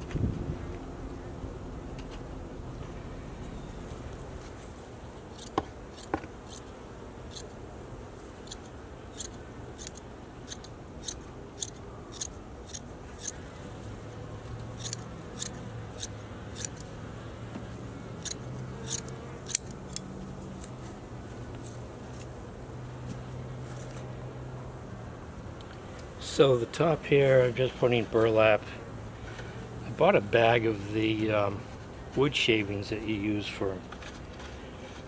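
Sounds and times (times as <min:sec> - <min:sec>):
scissors snipping: 0:05.4 - 0:06.7, 0:08.4 - 0:13.4, 0:14.7 - 0:16.9, 0:18.2 - 0:20.8.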